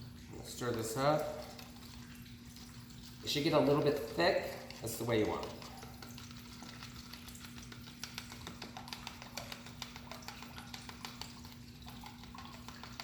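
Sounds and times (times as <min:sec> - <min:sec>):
kitchen clicks and taps: 0:04.6 - 0:13.0.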